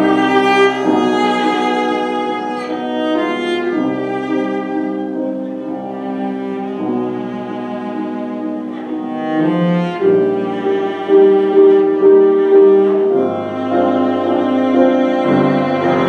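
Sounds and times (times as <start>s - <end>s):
bowed cello playing: 0.0s - 16.0s
piano accompaniment: 0.0s - 16.0s.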